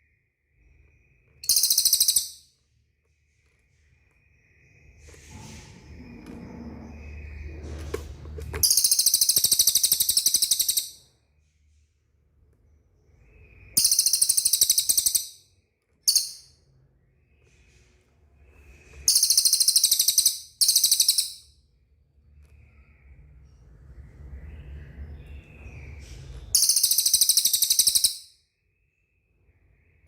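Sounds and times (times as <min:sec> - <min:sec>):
bird singing fast trills: 0:01.4 - 0:02.5, 0:08.6 - 0:11.0, 0:13.3 - 0:16.5, 0:19.0 - 0:21.5, 0:26.5 - 0:28.4.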